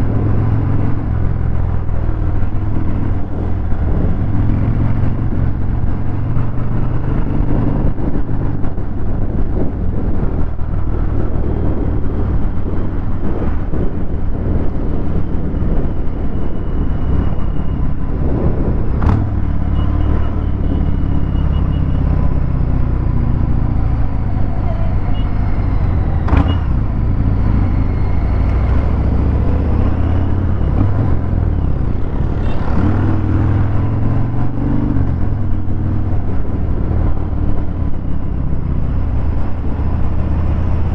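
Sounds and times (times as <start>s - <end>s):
motorcycle engine running: 20.4s - 34.2s.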